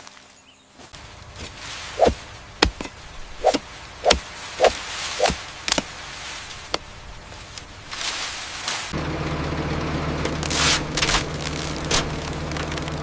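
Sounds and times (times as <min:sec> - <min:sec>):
blade chopping sugarcane: 0:01.4 - 0:06.0, 0:10.4 - 0:12.9.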